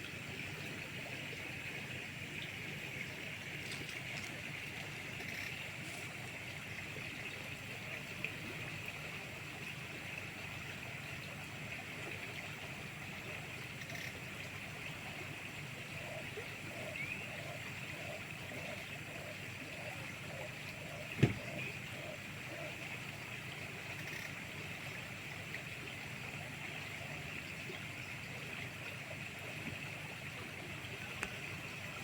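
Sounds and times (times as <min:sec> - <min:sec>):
river flowing: 0:00.0 - 0:32.0.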